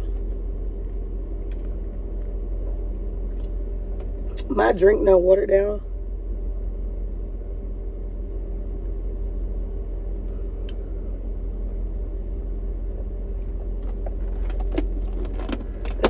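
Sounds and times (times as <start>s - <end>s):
vehicle idling hum: 0.0s - 16.0s.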